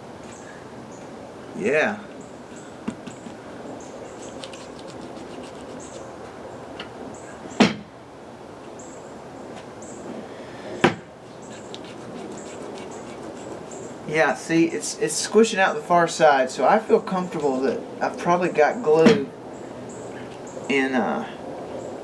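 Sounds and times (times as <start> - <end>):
sharp knocks: 7.6 - 7.9, 10.8 - 11.1.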